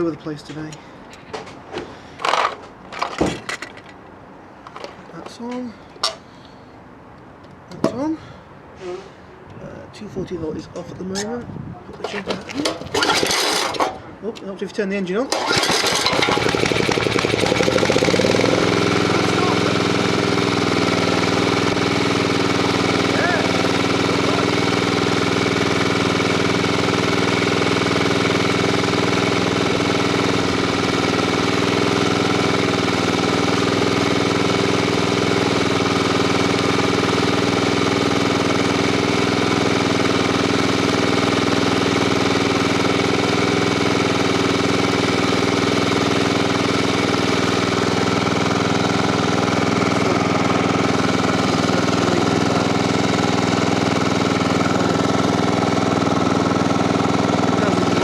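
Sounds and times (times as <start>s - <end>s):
generator engine running: 12.5s - 14.2s, 15.3s - 58.0s.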